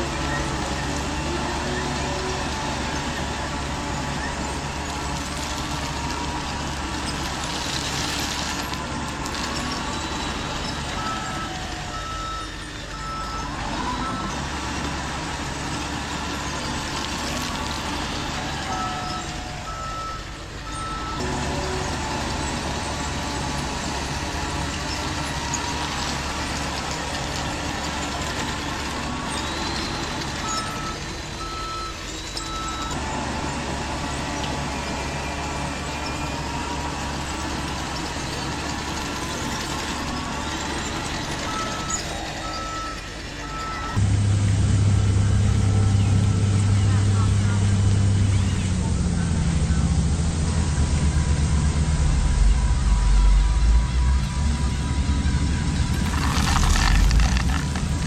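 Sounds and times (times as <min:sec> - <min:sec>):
heavy truck engine running: 0:00.0 - 0:58.0
reversing alarm beeping: 0:05.6 - 0:14.6, 0:16.1 - 0:21.8, 0:27.8 - 0:44.1.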